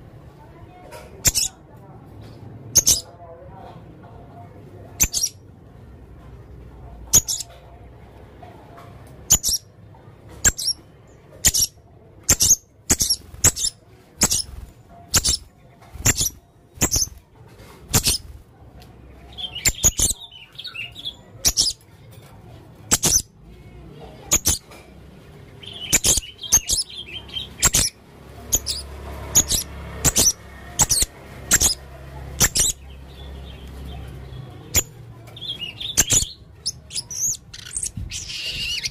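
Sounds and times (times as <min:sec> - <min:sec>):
parrot soft twittering: 0:05.0 - 0:05.4, 0:34.7 - 0:38.9.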